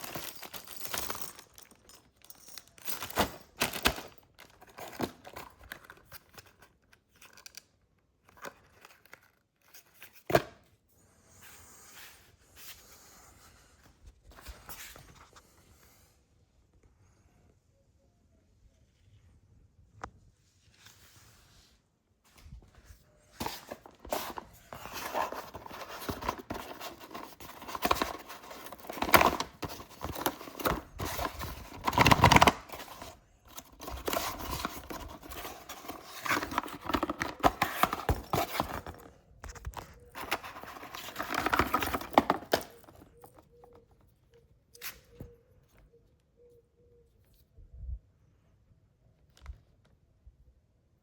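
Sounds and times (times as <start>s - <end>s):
cardboard and plastic rustling: 0.0s - 10.7s, 22.3s - 44.2s.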